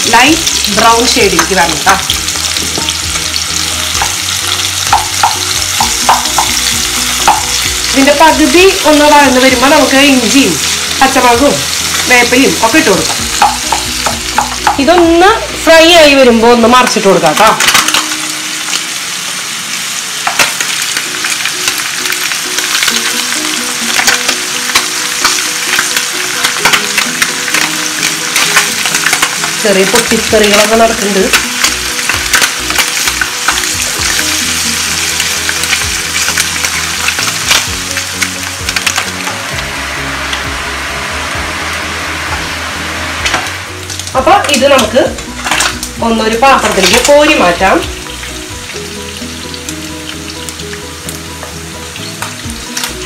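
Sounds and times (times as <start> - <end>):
oil popping and crackling: 0.0 - 40.6, 43.2 - 53.0
onions sizzling in a pan: 0.0 - 53.0
spoon knocking against pan: 4.8 - 7.7, 13.1 - 15.0.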